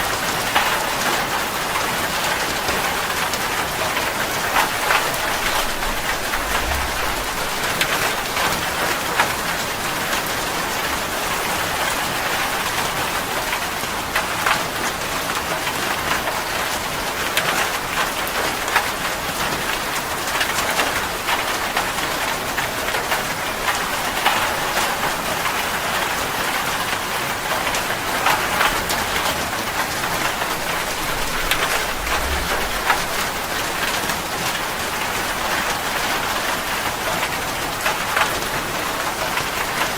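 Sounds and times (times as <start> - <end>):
steady rain falling: 0.0 - 39.9
low rumble: 4.8 - 8.7, 30.2 - 35.0.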